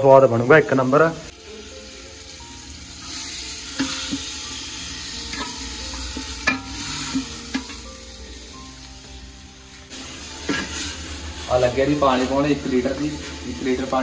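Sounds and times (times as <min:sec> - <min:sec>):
chicken sizzling in a pot: 0:00.0 - 0:14.0
metal spatula scraping a pot: 0:03.1 - 0:07.8, 0:09.9 - 0:12.5.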